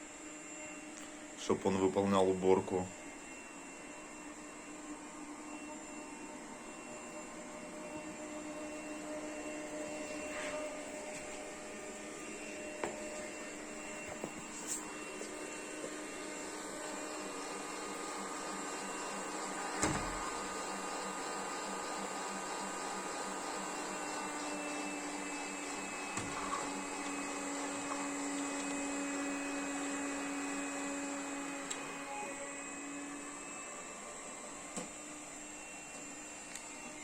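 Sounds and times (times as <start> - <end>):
robot vacuum motor whirring: 7.8 - 37.0.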